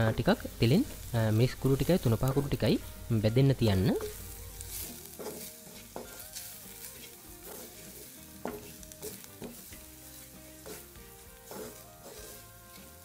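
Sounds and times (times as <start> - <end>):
onions sizzling in oil: 0.0 - 13.0
wooden spoon scraping pot: 10.2 - 12.8.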